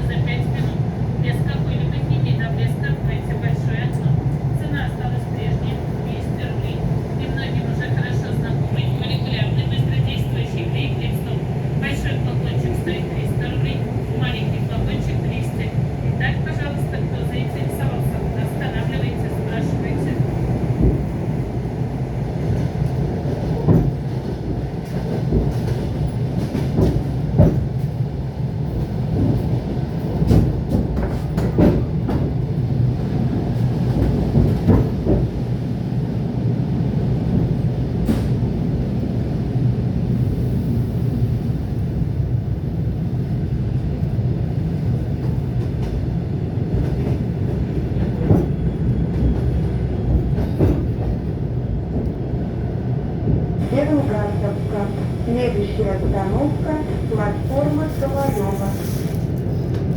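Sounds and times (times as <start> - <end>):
train rumbling on track: 0.0 - 59.9.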